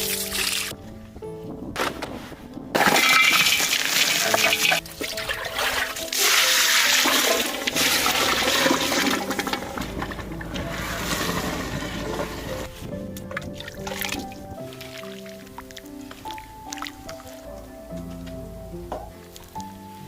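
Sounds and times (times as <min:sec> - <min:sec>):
soft background music: 0:00.0 - 0:20.0
water running and splashing: 0:03.4 - 0:12.7, 0:13.4 - 0:17.6.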